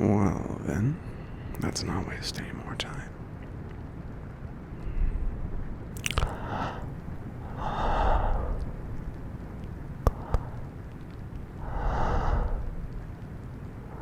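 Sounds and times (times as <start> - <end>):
rain: 0.0 - 14.0
mouth clicks: 5.9 - 13.0
breathy exhales: 6.1 - 8.7, 11.6 - 12.8.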